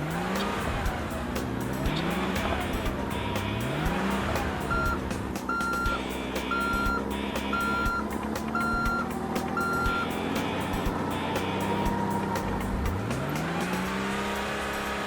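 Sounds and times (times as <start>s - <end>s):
low engine hum: 0.0s - 15.0s
truck reversing alarm beeping: 1.9s - 12.9s.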